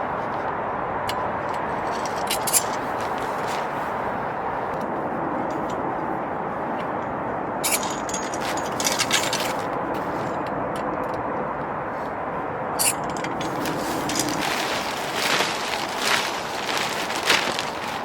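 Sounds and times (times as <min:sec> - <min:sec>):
sharp rustling: 0:01.5 - 0:05.9, 0:07.6 - 0:10.4, 0:12.8 - 0:18.0.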